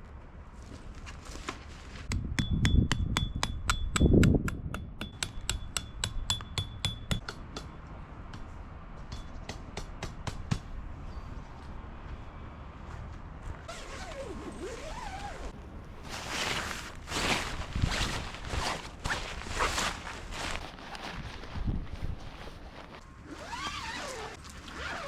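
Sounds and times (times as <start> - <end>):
sharp metallic taps: 2.2 - 8.5.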